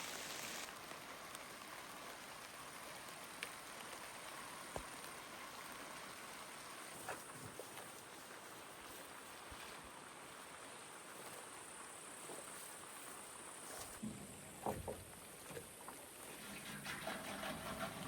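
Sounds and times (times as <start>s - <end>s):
insects chirring in grass: 7.3s - 14.4s.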